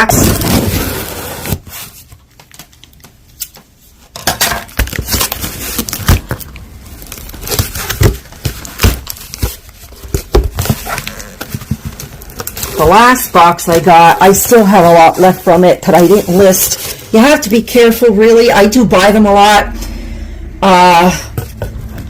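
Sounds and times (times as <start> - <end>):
packaging crinkling and tearing: 4.7 - 13.8
packaging rustling: 4.7 - 17.6.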